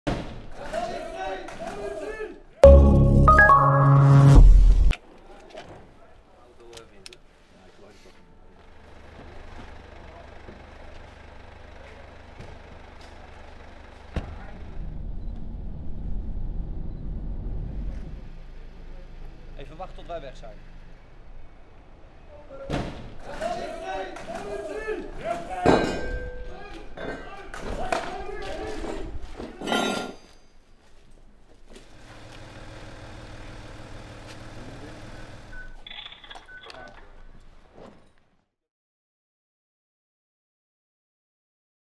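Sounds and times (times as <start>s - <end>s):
short electronic beeps: 2.6s - 4.5s
vehicle engine idling: 8.7s - 22.2s, 32.0s - 35.5s
low rumble: 14.4s - 19.5s.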